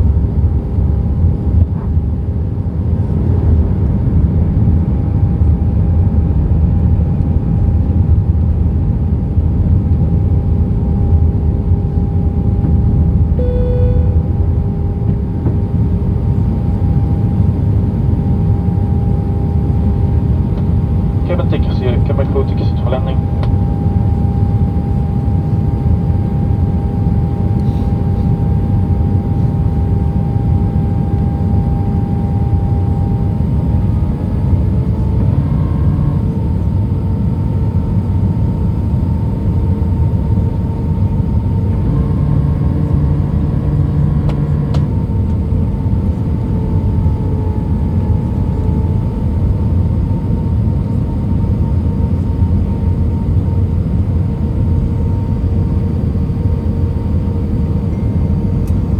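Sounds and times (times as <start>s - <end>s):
jet engine cabin rumble: 0.0s - 58.9s.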